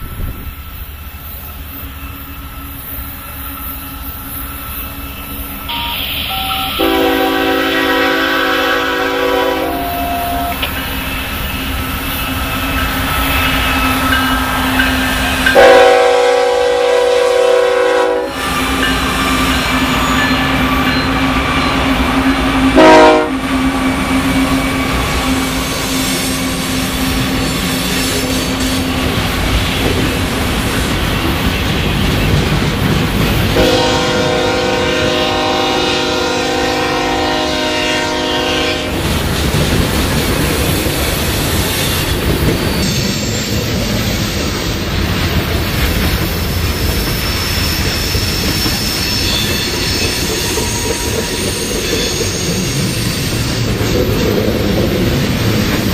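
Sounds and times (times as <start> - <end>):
train wheels rumbling on rail: 0.0 - 55.9
rising wheel squeal: 0.3 - 6.8, 9.7 - 10.6, 18.3 - 22.5, 46.4 - 54.3
locomotive chime horn: 5.7 - 10.7, 13.6 - 25.1, 33.6 - 39.0.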